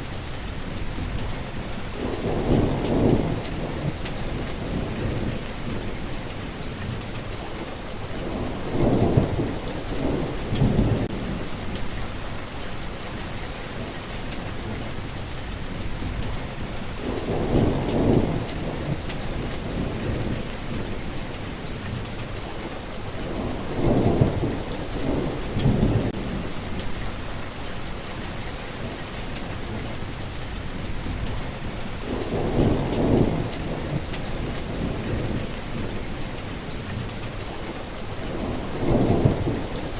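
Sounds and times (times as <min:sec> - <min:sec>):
steady rain: 0:00.0 - 0:39.9
rolling thunder: 0:00.7 - 0:06.1, 0:08.1 - 0:12.3, 0:15.8 - 0:21.2, 0:23.2 - 0:27.4, 0:30.8 - 0:36.3, 0:38.2 - 0:39.9.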